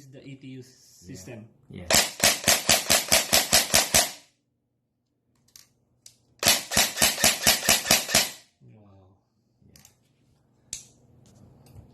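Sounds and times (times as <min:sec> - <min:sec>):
airsoft rifle firing bursts: 0:01.9 - 0:04.2, 0:06.4 - 0:08.4.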